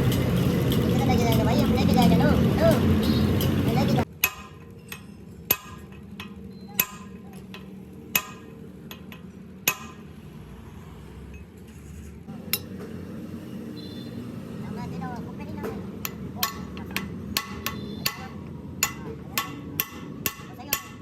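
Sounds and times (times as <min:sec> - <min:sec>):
hammer striking steel: 0:03.3 - 0:10.3, 0:12.4 - 0:13.0, 0:15.6 - 0:21.0.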